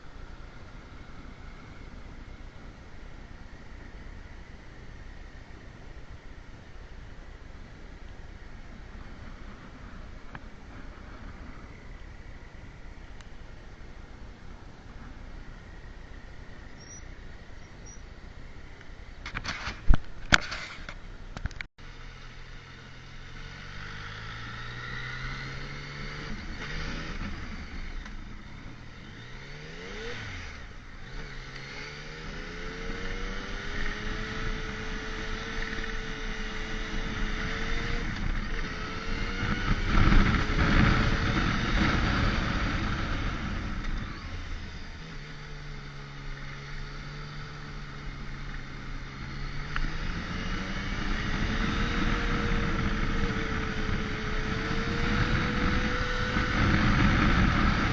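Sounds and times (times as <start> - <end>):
road and wind noise: 0.0 - 57.9
motorcycle engine running: 21.8 - 57.9.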